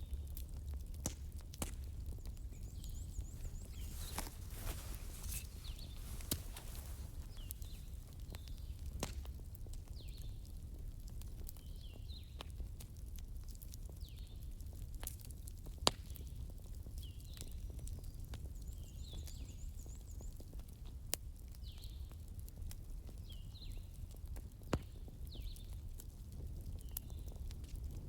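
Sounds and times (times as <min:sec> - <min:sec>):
burning logs crackling: 0:00.0 - 0:17.7, 0:20.8 - 0:28.0
sharp pops from fire: 0:00.9 - 0:10.1
low rumble of flames: 0:20.9 - 0:28.0.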